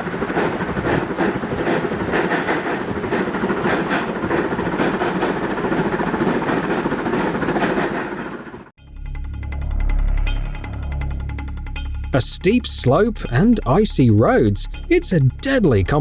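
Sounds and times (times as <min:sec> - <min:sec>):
steam snowplow chuffing: 0:00.0 - 0:08.7, 0:12.2 - 0:16.0.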